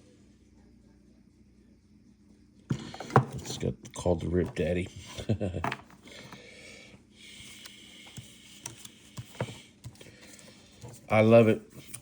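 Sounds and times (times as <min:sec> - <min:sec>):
trading cards rustling and clicking: 0:07.4 - 0:12.0
person speaking: 0:10.9 - 0:12.0.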